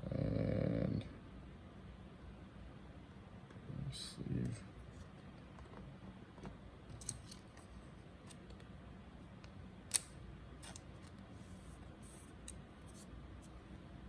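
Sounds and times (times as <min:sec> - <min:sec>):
cards sliding into plastic sleeve: 0:09.9 - 0:13.1.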